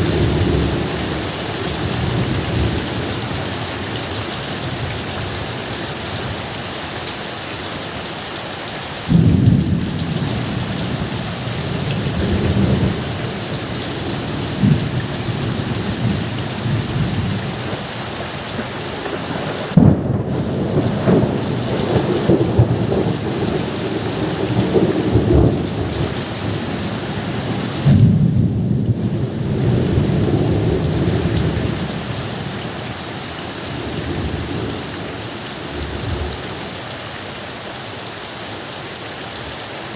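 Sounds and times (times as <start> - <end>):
rain hissing: 0.0 - 39.9
thunder rumbling: 9.1 - 32.8.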